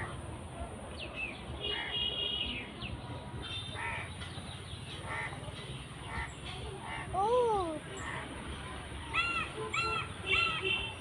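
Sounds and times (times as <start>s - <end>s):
harsh bird calls: 1.2s - 8.3s.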